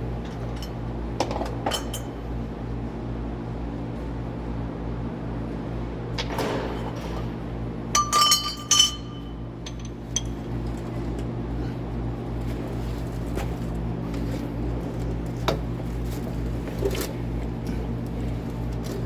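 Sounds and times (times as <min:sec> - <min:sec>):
steady low hum: 0:00.0 - 0:19.0
metal tools clinking: 0:08.0 - 0:10.4.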